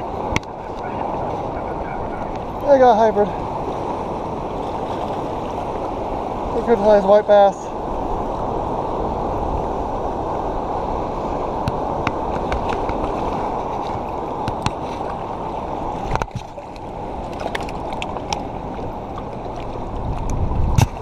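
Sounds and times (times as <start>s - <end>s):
turbulent water rushing: 0.0s - 21.0s.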